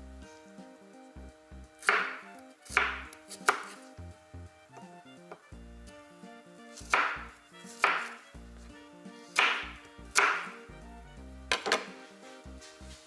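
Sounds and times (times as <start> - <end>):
background music: 0.0 - 13.0
knife striking cutting board: 1.8 - 3.9, 6.8 - 8.3, 9.4 - 10.7, 11.5 - 12.0.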